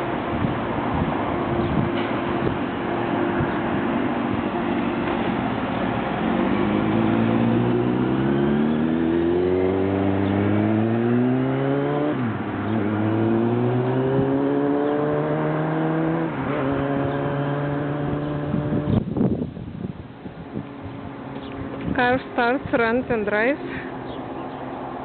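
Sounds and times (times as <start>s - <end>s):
car engine accelerating: 4.9s - 19.3s.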